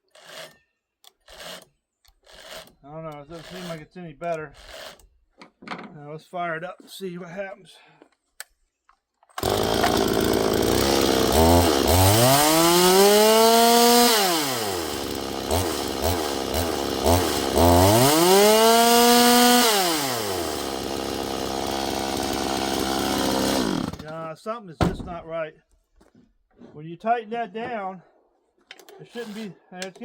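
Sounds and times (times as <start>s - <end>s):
chainsaw idling and revving: 9.4s - 24.2s.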